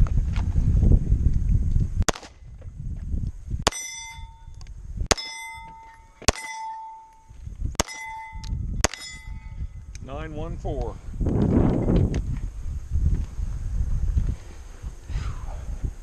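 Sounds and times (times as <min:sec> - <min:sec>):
pistol shots: 0:02.1 - 0:02.4, 0:05.1 - 0:05.5, 0:06.2 - 0:06.8, 0:07.8 - 0:09.3
steel plate ringing: 0:03.7 - 0:09.8.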